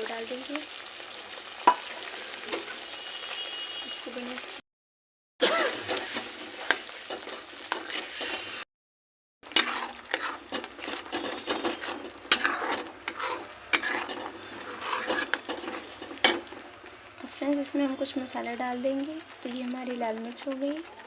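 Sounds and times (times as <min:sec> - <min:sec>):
food sizzling in hot oil: 0:00.0 - 0:04.6, 0:05.4 - 0:08.7, 0:09.4 - 0:21.0
spatula scraping and tapping pan: 0:05.6 - 0:08.6, 0:09.5 - 0:16.8.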